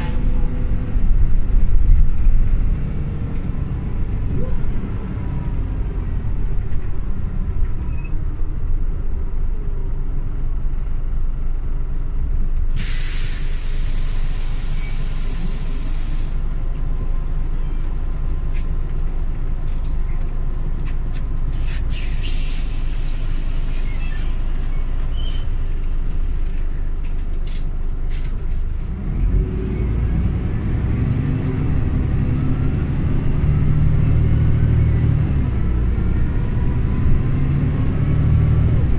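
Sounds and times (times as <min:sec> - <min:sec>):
bus engine running: 0:00.0 - 0:38.9
air brake hiss: 0:12.8 - 0:16.5, 0:21.6 - 0:24.5.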